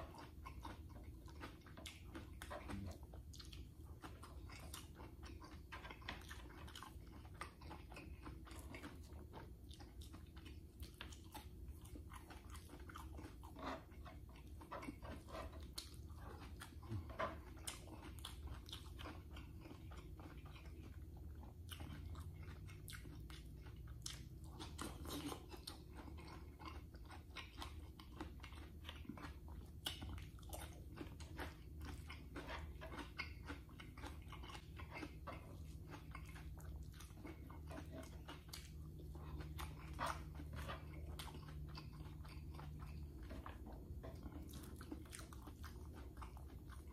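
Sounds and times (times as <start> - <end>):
person chewing food: 0.0 - 46.9
steady low hum: 0.0 - 46.9.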